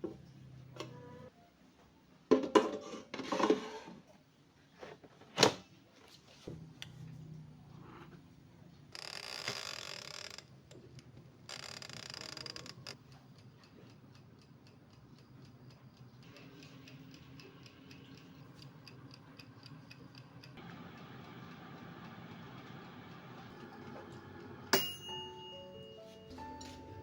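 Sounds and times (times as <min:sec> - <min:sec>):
steady mechanical ticking: 0:09.8 - 0:24.5.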